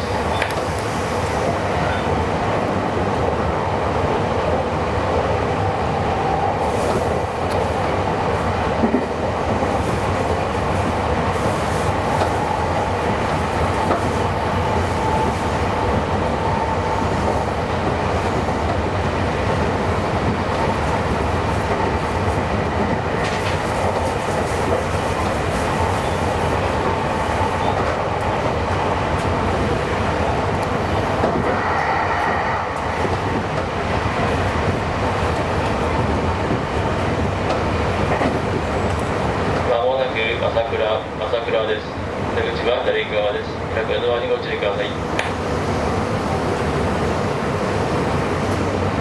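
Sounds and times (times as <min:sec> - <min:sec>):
train wheels rumbling on rail: 0:00.0 - 0:49.0
faint train whine: 0:25.5 - 0:35.4.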